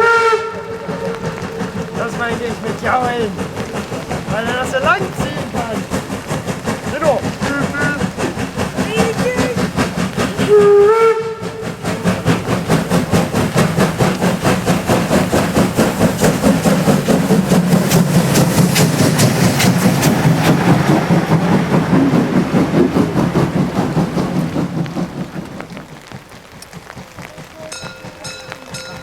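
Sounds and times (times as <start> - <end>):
steam locomotive whistle: 0.0 - 2.4, 10.4 - 11.8
steam locomotive chuffing: 0.0 - 29.0.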